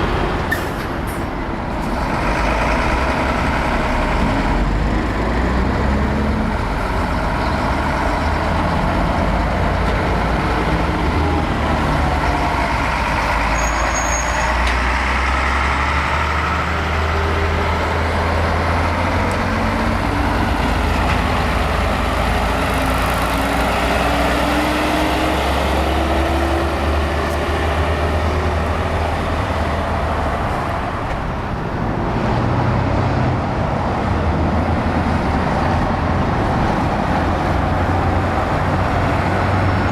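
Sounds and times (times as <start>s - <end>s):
diesel trucks rumbling: 0.0s - 39.9s.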